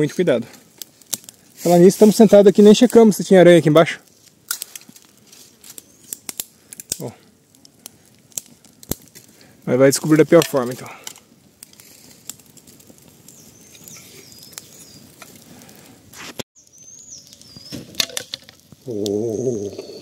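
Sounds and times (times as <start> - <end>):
campfire crackling: 0.0 - 20.0
birds whistling calls: 13.3 - 15.1, 16.6 - 17.9.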